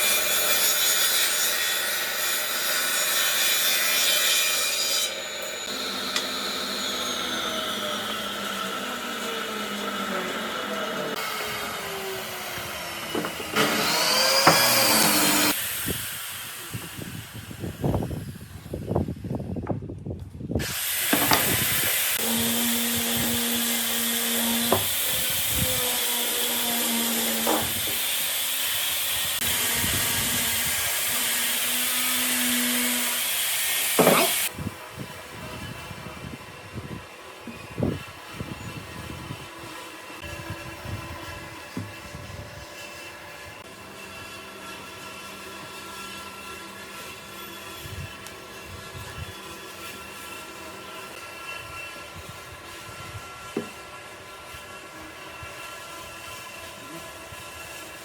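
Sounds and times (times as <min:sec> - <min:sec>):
power tool cutting wood: 0:00.0 - 0:18.3, 0:20.6 - 0:58.0
knocks and scraping on wood: 0:13.0 - 0:15.5, 0:27.3 - 0:27.8, 0:34.0 - 0:34.4.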